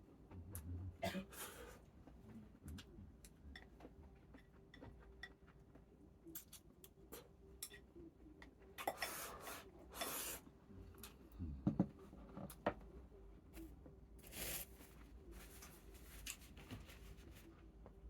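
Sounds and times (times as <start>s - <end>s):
utensils clinking against dishes: 7.6s - 7.9s.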